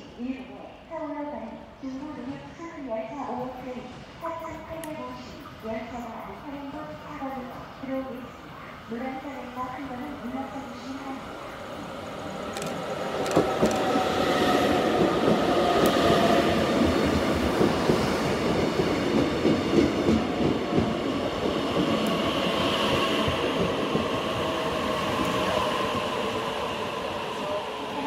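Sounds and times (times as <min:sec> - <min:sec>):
train wheels rumbling on rail: 0:09.9 - 0:28.0
train clacks: 0:12.4 - 0:28.0.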